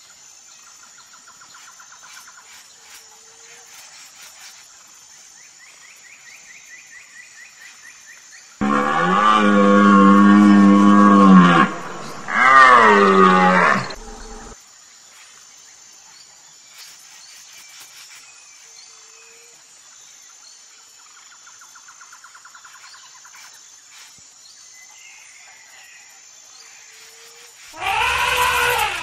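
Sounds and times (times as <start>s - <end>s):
wavering animal call: 8.6s - 14.6s, 27.8s - 29.0s.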